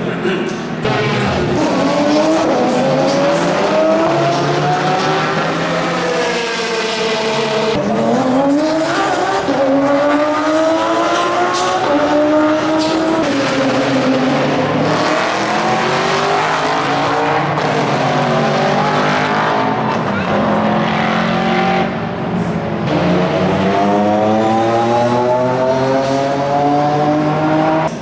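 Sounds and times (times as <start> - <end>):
race car engine at full throttle: 0.0 - 28.0.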